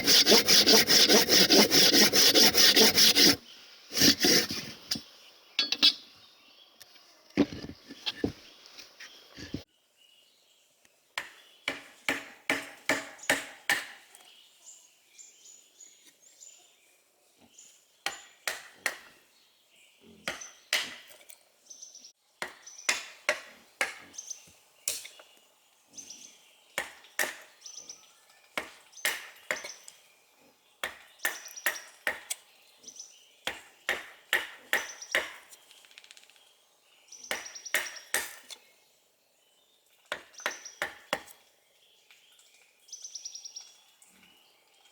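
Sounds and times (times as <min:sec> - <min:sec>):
tool striking wood with metallic ring: 0:05.6 - 0:06.0.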